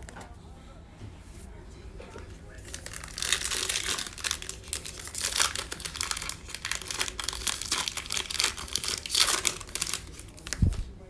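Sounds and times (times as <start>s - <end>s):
plastic wrapper tearing and crinkling: 2.5s - 10.9s.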